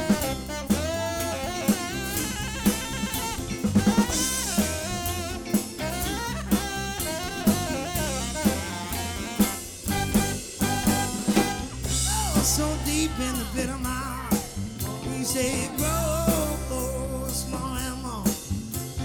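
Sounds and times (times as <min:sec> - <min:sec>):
lead instrument bending melody: 0:00.0 - 0:14.2
bass line: 0:00.0 - 0:19.0
drum kit beat: 0:00.0 - 0:19.0.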